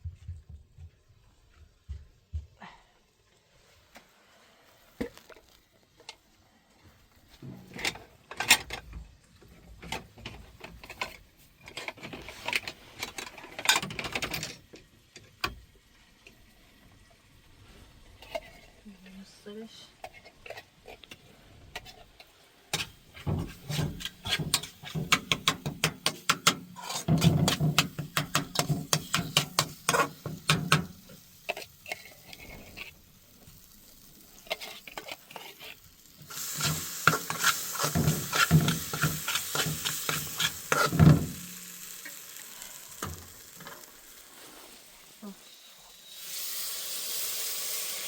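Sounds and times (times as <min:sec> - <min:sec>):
food sizzling: 0:19.4 - 0:48.0
utensil scraping a pan: 0:20.0 - 0:33.1, 0:34.4 - 0:44.9.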